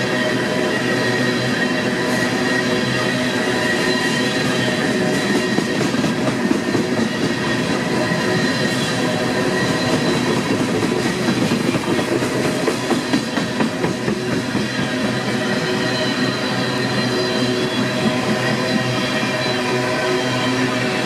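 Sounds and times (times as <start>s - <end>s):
high squealing ring: 0.0s - 21.0s
train wheels clattering on rails: 0.0s - 21.0s.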